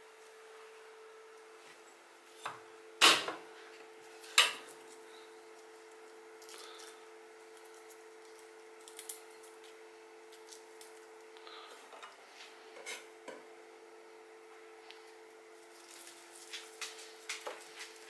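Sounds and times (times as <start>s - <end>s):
garlic skin rustling: 15.0s - 18.0s.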